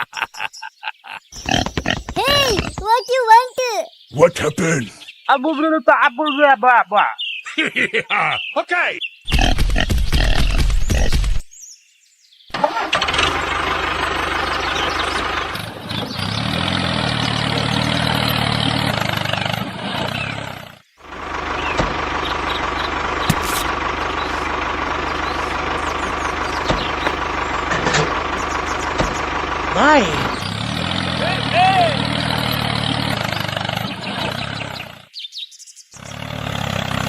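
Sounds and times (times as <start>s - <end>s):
tractor motor running: 12.5s - 35.0s.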